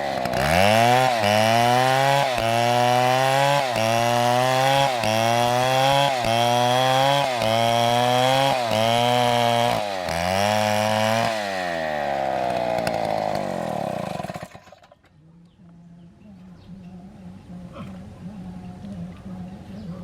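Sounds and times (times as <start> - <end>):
chainsaw engine revving: 0.0 - 15.1.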